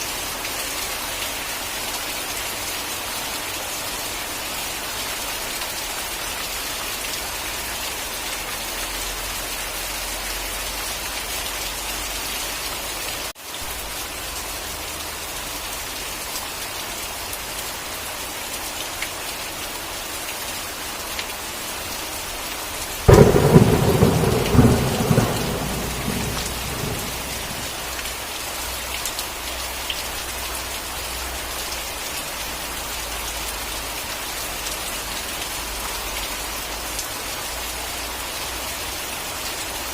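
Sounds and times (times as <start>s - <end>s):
heavy rain hissing: 0.0s - 39.9s
thunder clap and rumble: 23.1s - 28.0s.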